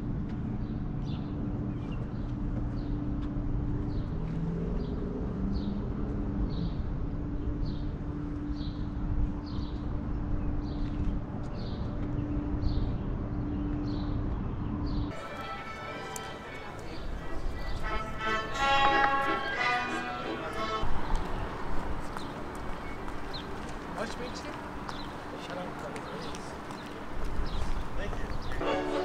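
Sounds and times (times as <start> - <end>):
low hum and rumble: 0.0 - 15.1.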